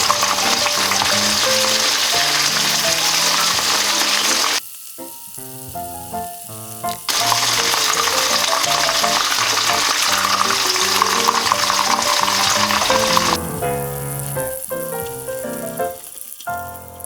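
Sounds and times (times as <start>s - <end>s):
chicken sizzling in hot oil: 0.0s - 17.0s
background music: 5.2s - 17.0s.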